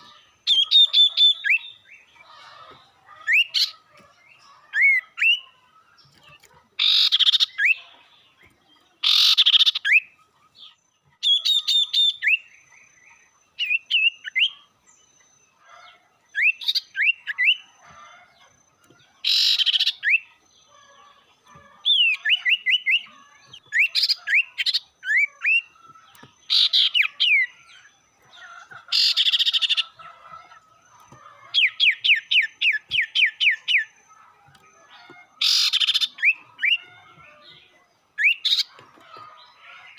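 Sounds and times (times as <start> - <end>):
bird harsh scolding calls: 0.0 - 8.0, 9.0 - 10.2, 19.2 - 37.6, 38.2 - 39.9.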